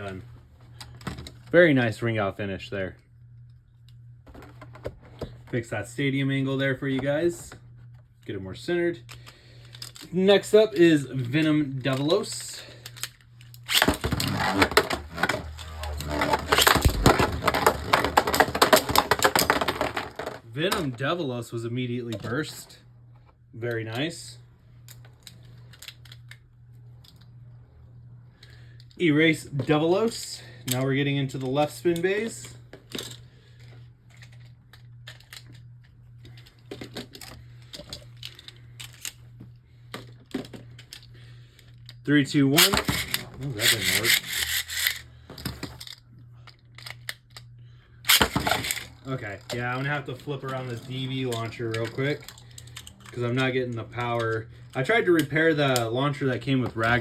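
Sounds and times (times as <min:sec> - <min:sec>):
steady low hum: 0:00.0 - 0:57.0
spinning tops clashing and rattling: 0:42.6 - 0:45.0.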